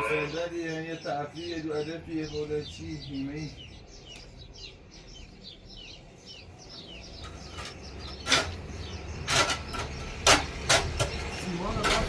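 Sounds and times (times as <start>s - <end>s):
small bird chirping: 0.0s - 12.0s
sharp cracking or scraping: 7.2s - 12.0s.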